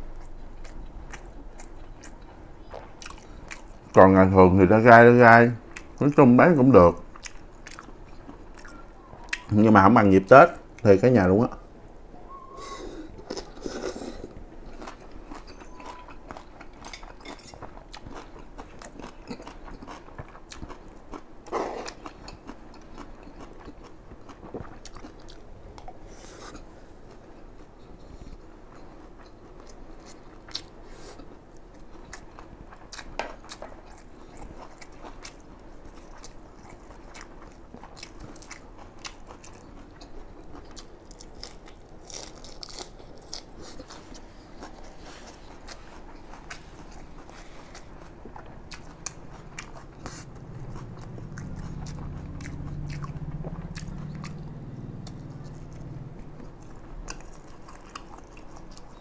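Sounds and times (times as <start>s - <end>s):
man chewing with wet smacks: 0.0s - 4.0s, 5.6s - 9.5s, 12.4s - 59.0s
crunchy lettuce bite: 40.4s - 54.4s.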